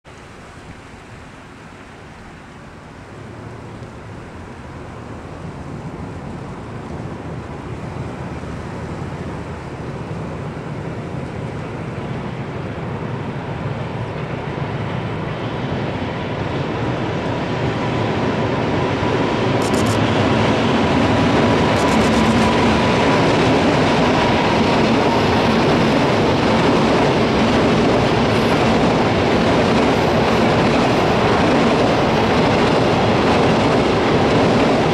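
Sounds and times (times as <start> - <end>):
wheels rumbling on rails: 0.1 - 34.9
steady whine: 17.8 - 34.9.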